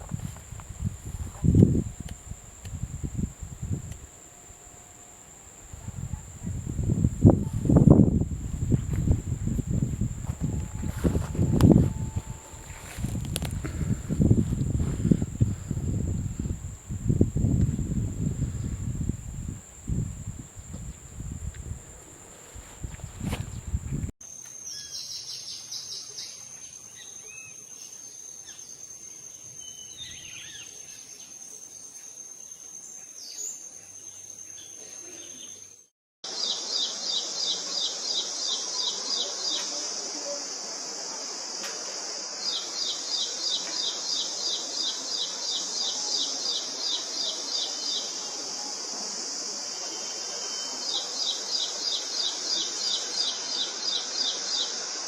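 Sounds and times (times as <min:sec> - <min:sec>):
insect chorus drone: 0:00.0 - 0:55.0.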